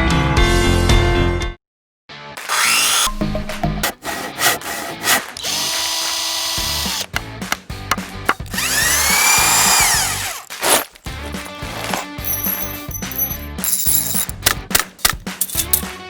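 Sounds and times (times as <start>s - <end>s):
power drill running: 2.5s - 3.1s, 4.0s - 7.2s, 8.4s - 12.4s.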